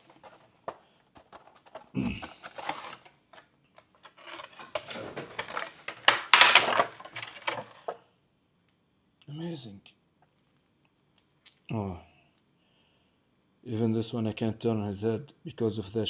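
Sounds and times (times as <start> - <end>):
packaging rustling and clicking: 0.0 - 8.0.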